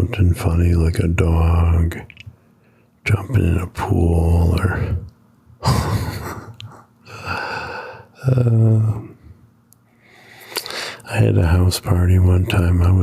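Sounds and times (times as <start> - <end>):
man breathing noisily: 7.0 - 8.2, 9.9 - 11.1.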